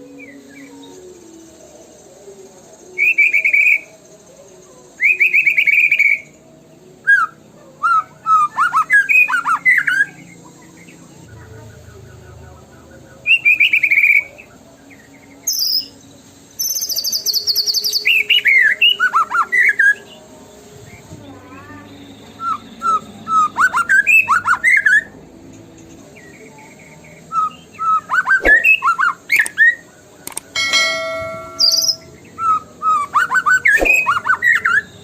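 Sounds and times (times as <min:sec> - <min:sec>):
songbird trills and whistles: 0:02.9 - 0:04.0, 0:04.8 - 0:06.4, 0:07.0 - 0:11.0, 0:13.2 - 0:20.2, 0:21.8 - 0:25.1, 0:26.2 - 0:35.0.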